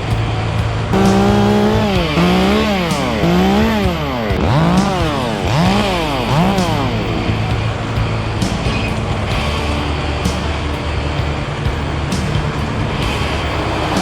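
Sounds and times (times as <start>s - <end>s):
low engine hum: 0.0s - 14.0s
chainsaw cutting wood: 1.0s - 7.7s.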